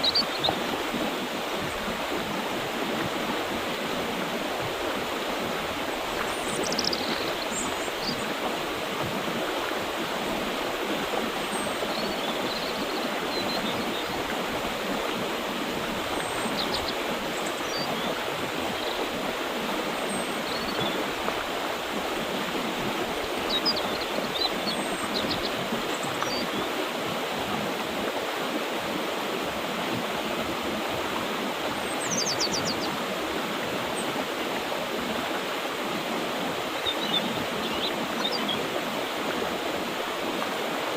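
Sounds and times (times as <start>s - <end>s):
river rushing water: 0.0s - 40.9s
small birds chirping faintly: 2.9s - 21.9s.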